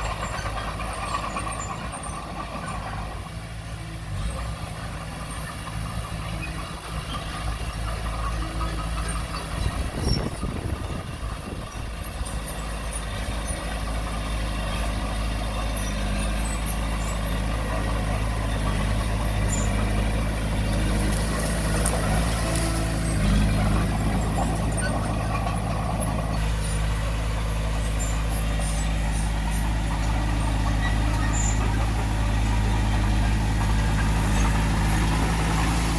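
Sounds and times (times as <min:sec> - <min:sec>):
heavy diesel engine running: 0:00.0 - 0:35.9.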